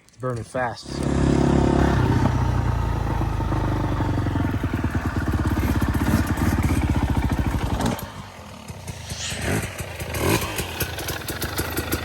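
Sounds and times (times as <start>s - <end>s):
dirt bike engine running: 0.8s - 12.0s.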